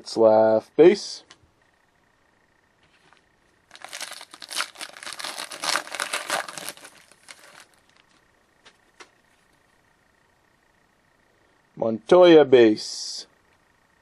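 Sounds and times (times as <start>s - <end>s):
plastic wrapper crumpling: 3.7s - 8.2s.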